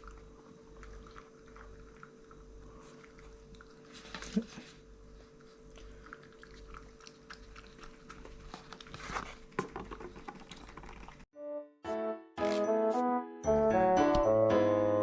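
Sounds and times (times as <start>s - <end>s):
pet chewing and crunching: 0.0s - 11.3s.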